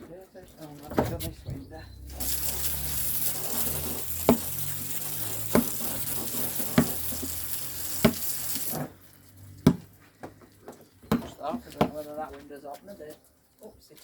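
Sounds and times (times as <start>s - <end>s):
steady hiss: 2.0s - 9.5s
basketball bouncing on hard ground: 4.2s - 4.6s, 5.5s - 7.4s, 8.0s - 8.9s, 9.6s - 12.2s.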